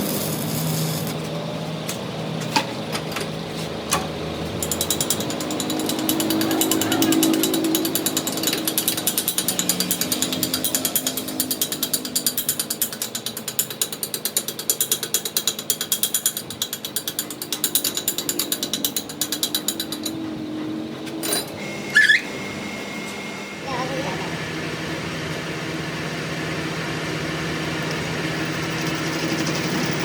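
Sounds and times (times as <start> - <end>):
rapid metallic ticking of machine: 4.6 - 20.6.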